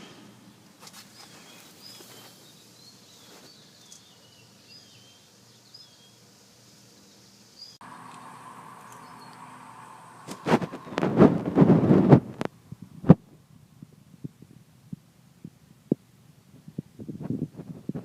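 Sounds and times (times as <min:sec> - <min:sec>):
faint birds chirping: 0:00.0 - 0:11.0
steady hum: 0:00.0 - 0:16.5.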